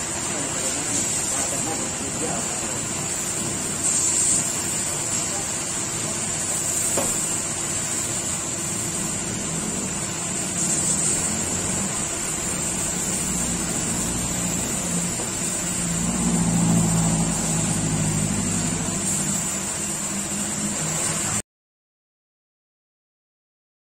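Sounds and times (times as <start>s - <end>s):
constant high hiss: 0.0s - 21.4s
motor humming: 1.6s - 21.4s.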